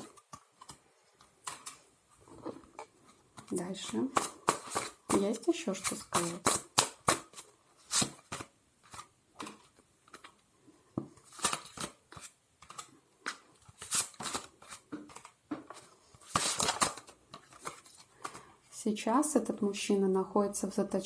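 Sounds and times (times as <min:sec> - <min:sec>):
cards being shuffled: 0:03.4 - 0:10.4, 0:11.2 - 0:18.5.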